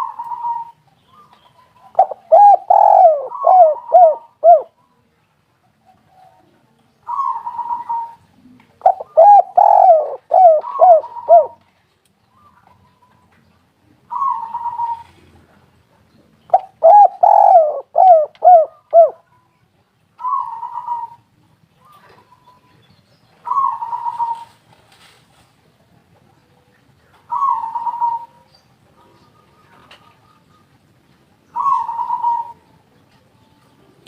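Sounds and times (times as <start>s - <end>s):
dove cooing: 0.0s - 4.8s, 7.0s - 11.6s, 14.1s - 15.6s, 16.5s - 19.3s, 20.2s - 22.5s, 23.4s - 24.6s, 27.2s - 30.8s, 31.5s - 32.7s.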